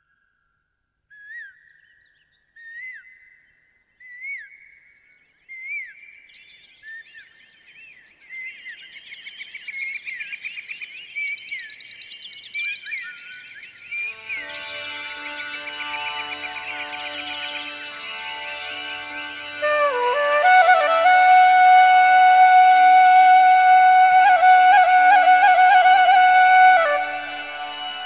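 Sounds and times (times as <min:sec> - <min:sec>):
birds chirping: 0:06.6 - 0:28.0.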